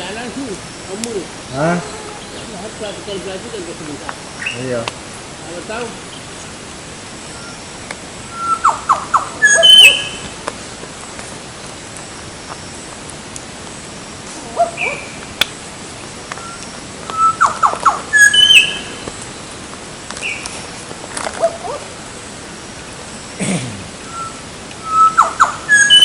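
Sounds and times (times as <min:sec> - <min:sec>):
wild birds calling: 0:00.0 - 0:26.0
sharp whistled bird notes: 0:07.2 - 0:07.7, 0:08.3 - 0:10.3, 0:16.4 - 0:19.0, 0:24.0 - 0:26.0.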